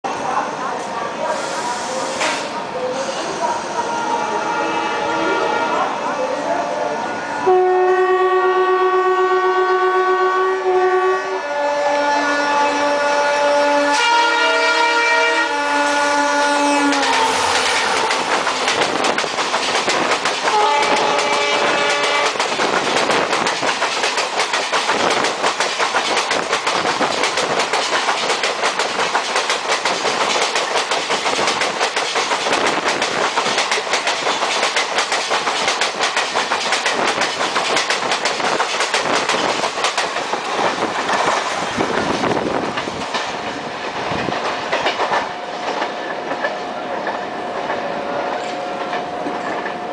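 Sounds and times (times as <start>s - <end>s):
locomotive horn blasts: 7.4s - 17.6s, 20.5s - 22.4s
train wheels clattering: 16.8s - 49.9s.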